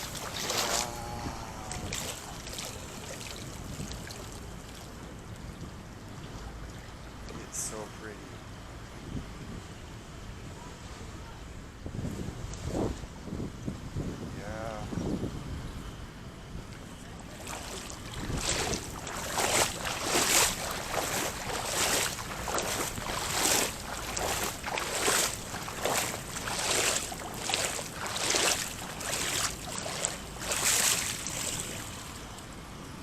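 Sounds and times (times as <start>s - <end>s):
pool water splashing: 0.0s - 7.8s, 16.8s - 32.6s.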